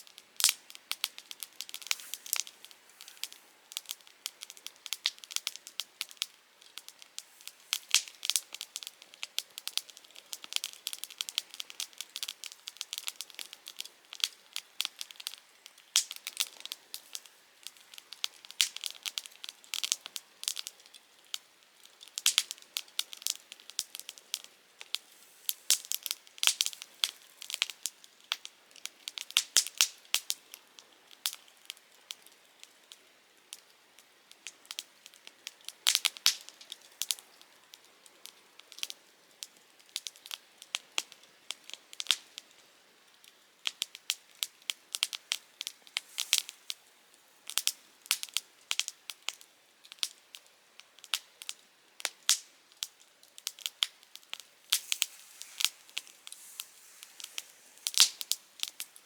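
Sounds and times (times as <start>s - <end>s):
faint hiss: 0.0s - 59.0s
firewood crackling and popping: 0.0s - 59.0s.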